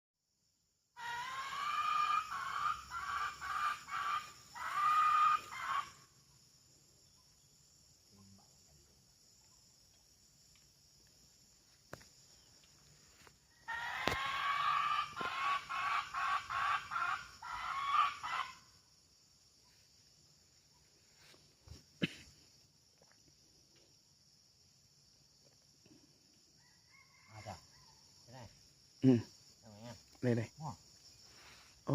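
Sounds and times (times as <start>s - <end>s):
imitated hen cackling call: 1.0s - 6.1s, 13.5s - 18.8s.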